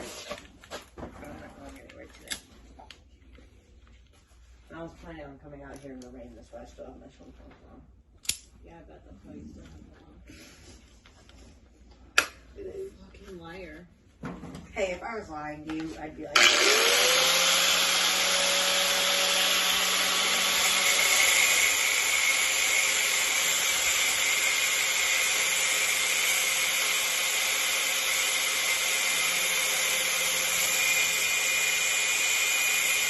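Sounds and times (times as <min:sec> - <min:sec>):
electric power tool whirring: 0:16.4 - 0:33.0.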